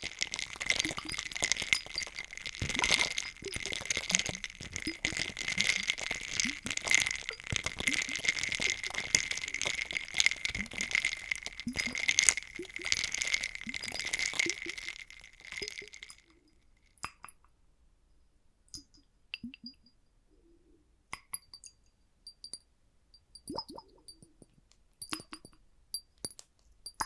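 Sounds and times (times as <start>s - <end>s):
liquid bubbling plops: 0.0s - 16.2s
ice cubes clinking in a drink: 0.0s - 16.6s.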